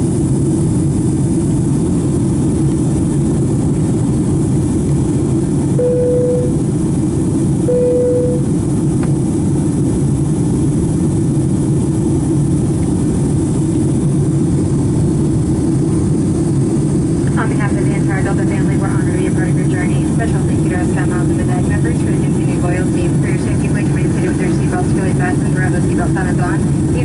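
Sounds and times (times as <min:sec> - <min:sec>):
airplane cabin engine noise: 0:00.0 - 0:27.0
short steady tones: 0:05.8 - 0:06.6, 0:07.7 - 0:08.5.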